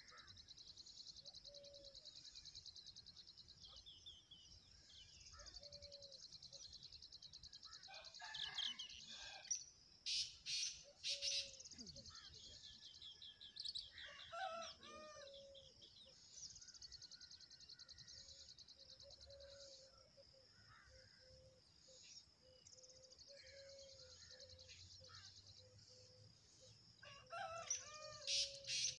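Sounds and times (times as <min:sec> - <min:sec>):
loud high bird calls: 0:27.3 - 0:29.0.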